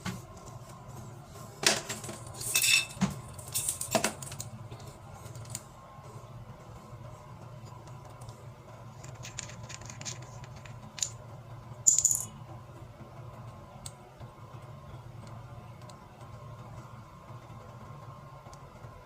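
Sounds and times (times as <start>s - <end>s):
small hard objects clinking: 11.9s - 12.3s.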